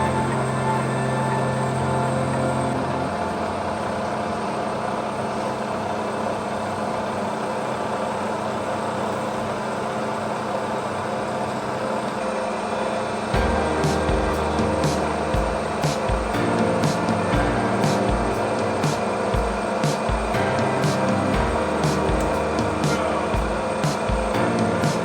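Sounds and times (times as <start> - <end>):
machine running: 13.4 - 25.0.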